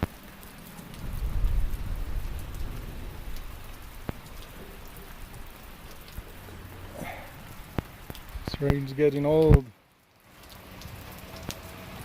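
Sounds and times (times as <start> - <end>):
steady rain: 0.0 - 12.0
low rumble: 0.9 - 8.7.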